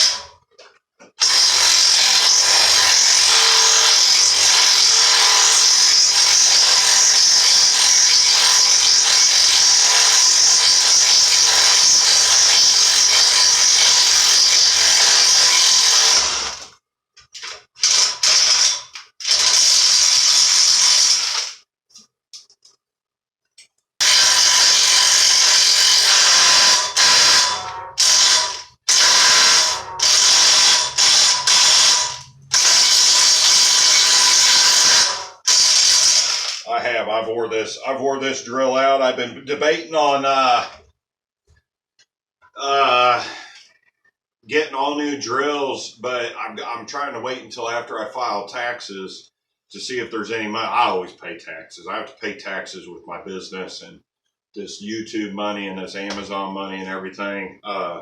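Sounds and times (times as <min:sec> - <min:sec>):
power drill drilling into metal: 0:00.0 - 0:00.3, 0:01.2 - 0:16.7, 0:17.4 - 0:21.6, 0:24.0 - 0:36.7.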